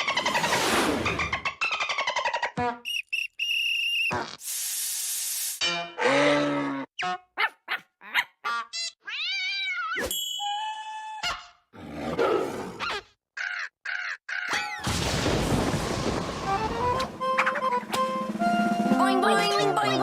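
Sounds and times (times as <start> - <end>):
rising and falling whistle: 2.9 - 4.1.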